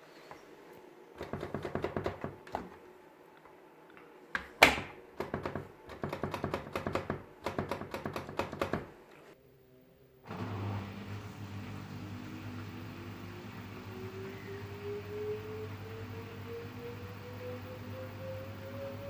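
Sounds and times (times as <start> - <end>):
washing machine knocking: 1.2 - 2.8, 4.4 - 9.0.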